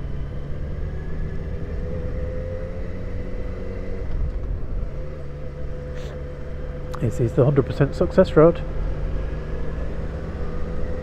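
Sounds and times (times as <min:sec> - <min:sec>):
motorcycle engine running: 0:00.0 - 0:11.0
road rumble: 0:00.0 - 0:11.0
wind: 0:00.0 - 0:11.0.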